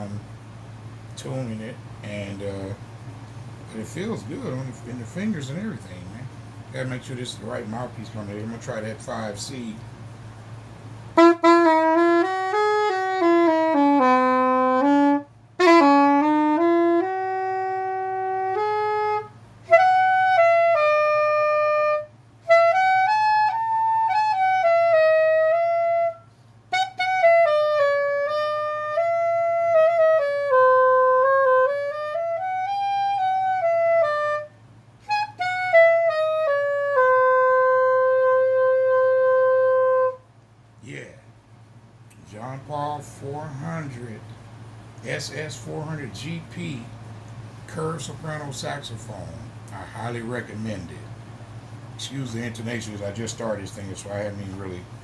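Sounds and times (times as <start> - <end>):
soprano saxophone solo melody: 11.2 - 40.2.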